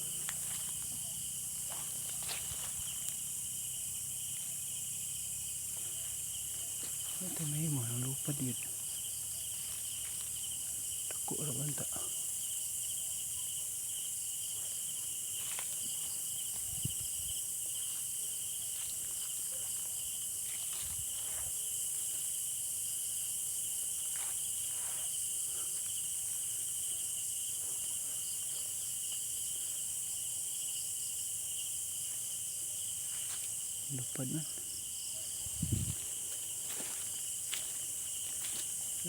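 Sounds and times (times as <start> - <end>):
night insects trilling: 0.0 - 39.0.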